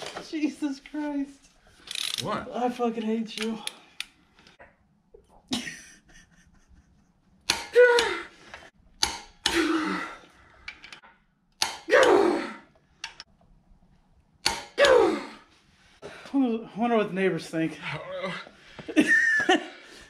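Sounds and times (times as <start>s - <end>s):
person grunting loudly: 7.5s - 8.4s, 9.5s - 10.2s, 11.9s - 12.6s, 14.8s - 15.4s.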